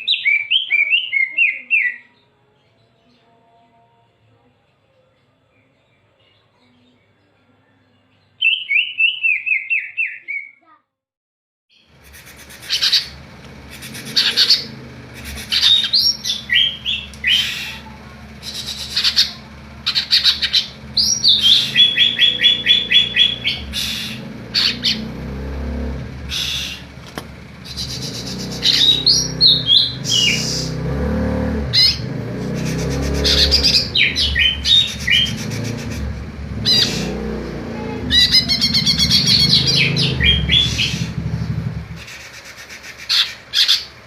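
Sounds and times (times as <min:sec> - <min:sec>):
steady low hum: 0:11.9 - 0:42.5
bird singing whistled phrases: 0:18.4 - 0:25.0, 0:27.7 - 0:30.7.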